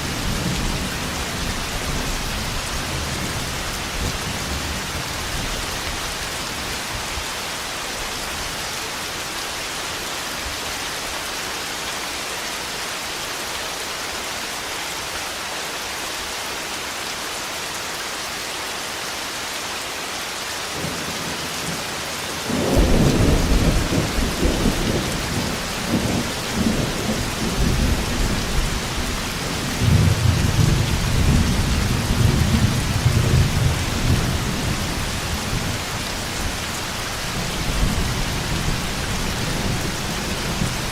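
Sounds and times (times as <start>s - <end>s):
heavy rain: 0.0s - 40.9s
rolling thunder: 22.5s - 34.8s.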